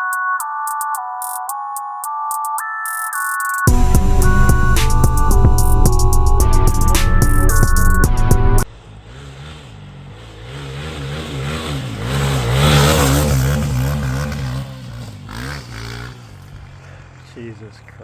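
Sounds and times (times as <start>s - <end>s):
dirt bike engine revving: 3.7s - 17.8s.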